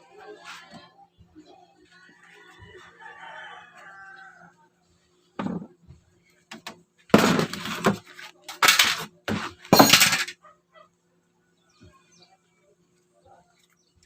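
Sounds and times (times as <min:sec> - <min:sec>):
knocking on wood: 0:05.4 - 0:05.7.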